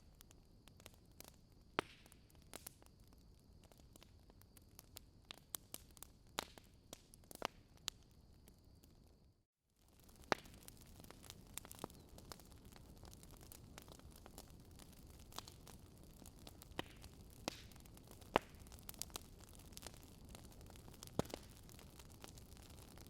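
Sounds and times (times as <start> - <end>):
wood fire crackling and popping: 0.0 - 9.2, 9.8 - 23.0.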